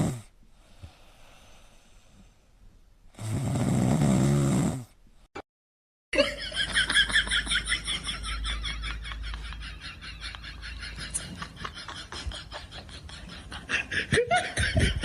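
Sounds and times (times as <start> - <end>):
pet snoring: 0.0 - 0.3, 3.2 - 5.0.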